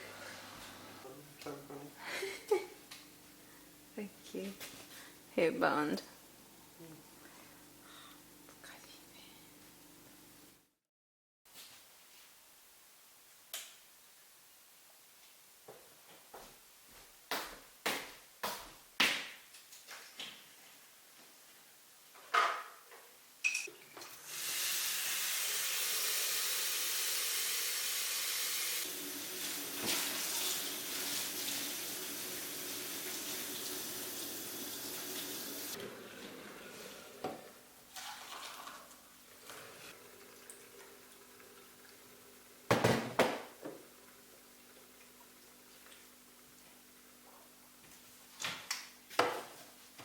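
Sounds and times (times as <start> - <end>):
faint steady hum: 0.0 - 10.6
tap running into a sink: 29.7 - 31.6.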